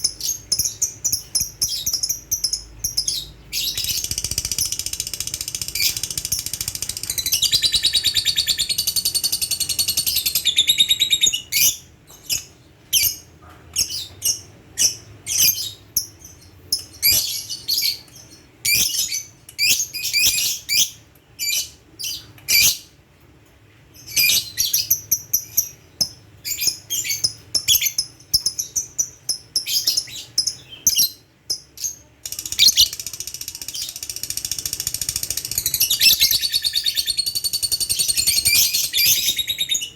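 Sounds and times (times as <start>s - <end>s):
lovebird chirps: 0.0s - 13.2s, 24.0s - 39.9s
lovebird trilling: 0.2s - 11.8s, 32.2s - 39.9s.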